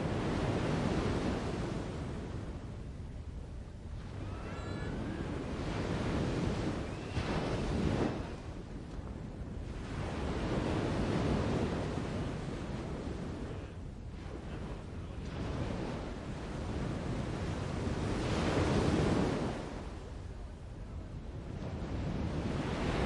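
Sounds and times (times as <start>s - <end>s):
faint high bird chirps: 4.2s - 5.3s.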